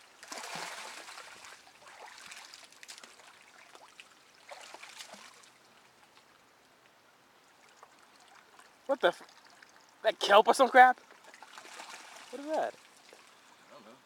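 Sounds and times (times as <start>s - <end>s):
muddy water splashing: 0.0s - 6.0s, 7.5s - 13.5s
water trickling and dripping: 0.0s - 13.6s.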